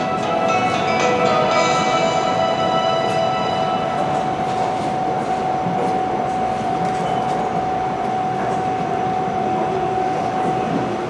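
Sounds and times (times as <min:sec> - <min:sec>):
steady whine: 0:00.0 - 0:06.8
train running on rails: 0:00.0 - 0:11.0.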